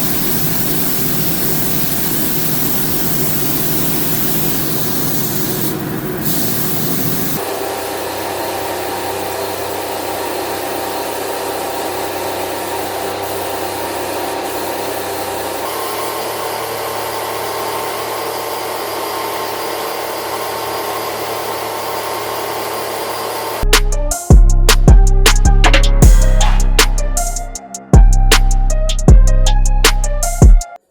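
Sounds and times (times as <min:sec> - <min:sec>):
power tool running: 0:00.0 - 0:23.7.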